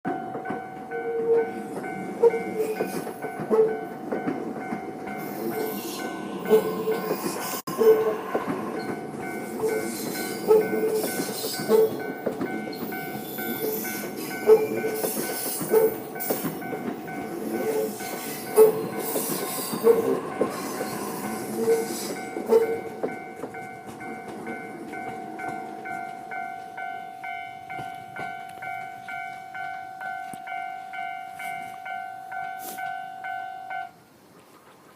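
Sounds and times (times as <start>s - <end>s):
train wheels clacking: 0.1s - 33.9s
level crossing warning bell: 0.1s - 34.0s
train rushing hiss: 5.1s - 12.2s, 12.8s - 23.1s, 32.5s - 33.0s.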